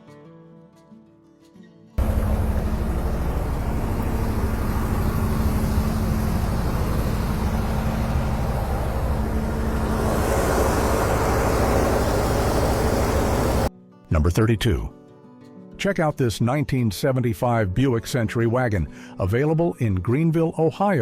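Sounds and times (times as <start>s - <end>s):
car engine rumbling: 2.0s - 13.7s.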